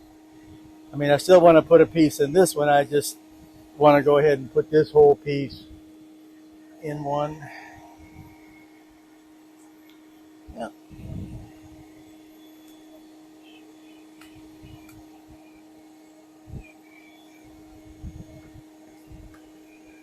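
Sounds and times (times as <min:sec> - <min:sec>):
honeybees buzzing: 0:00.0 - 0:20.0
faint high chirps: 0:06.3 - 0:20.0.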